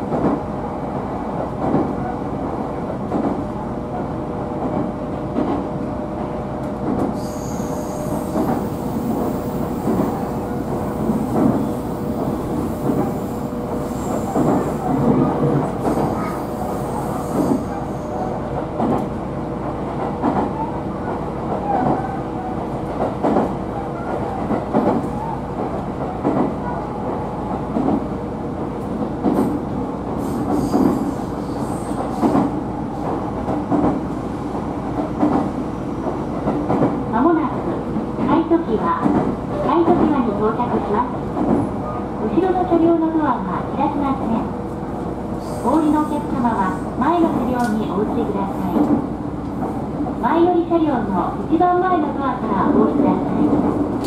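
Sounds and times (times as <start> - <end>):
train running rumble and hum: 0.0 - 54.0
high wheel squeal: 7.2 - 8.4.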